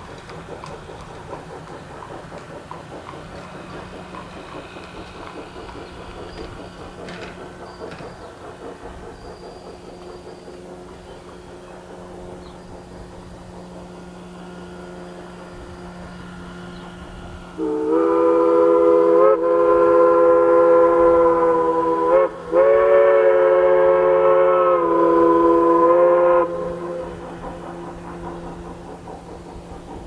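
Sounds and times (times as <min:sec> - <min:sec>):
steam whistle blasts: 0:14.0 - 0:27.2.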